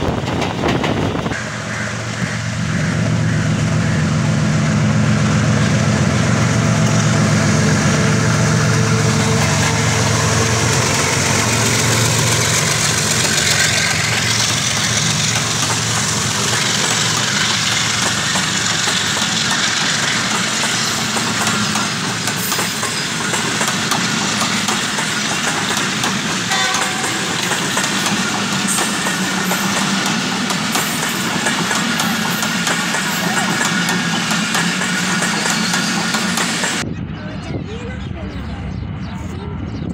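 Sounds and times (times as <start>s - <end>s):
diesel locomotive engine: 0.0s - 39.9s
rushing noise of running train: 0.0s - 39.9s.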